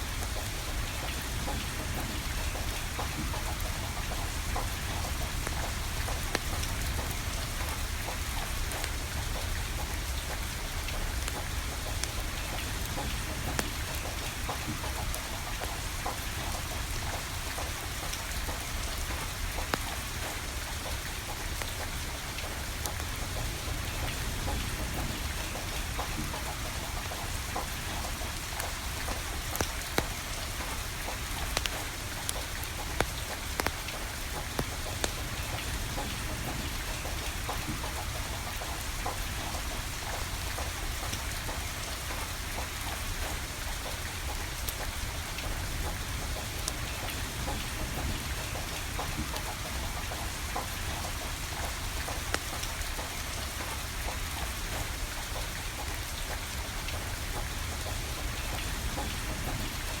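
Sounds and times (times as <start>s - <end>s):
rain falling: 0.0s - 60.0s
wood fire crackling: 26.0s - 43.6s, 48.8s - 54.0s.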